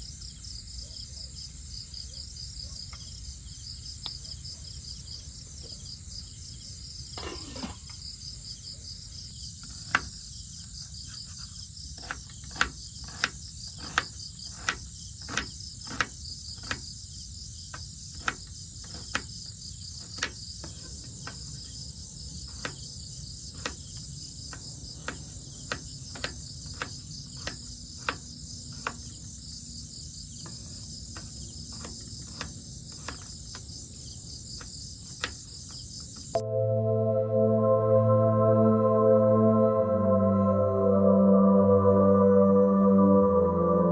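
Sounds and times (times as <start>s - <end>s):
insects chirring: 0.0s - 36.4s
short falling tone: 36.4s - 43.9s.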